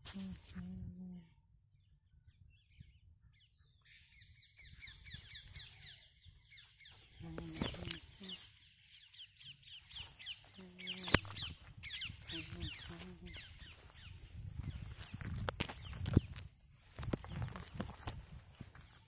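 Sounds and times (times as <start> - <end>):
birds chirping: 0.0 - 19.0
short low bird calls: 2.6 - 16.0.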